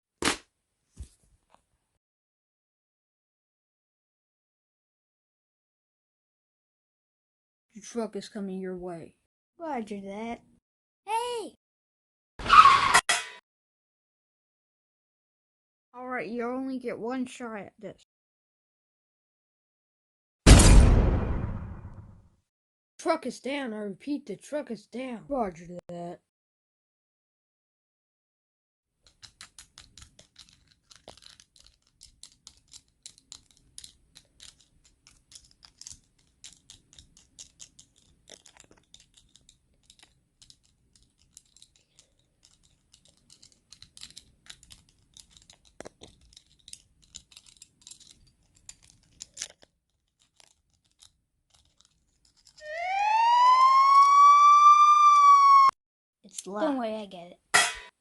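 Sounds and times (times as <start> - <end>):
faint light clicks and crackles: 29.0 - 52.6
police siren wailing: 52.6 - 55.8.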